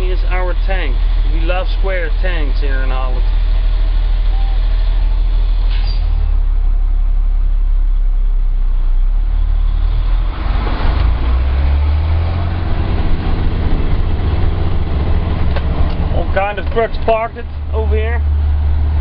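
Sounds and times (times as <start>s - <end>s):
truck diesel engine idling: 0.0s - 10.4s, 12.0s - 19.0s.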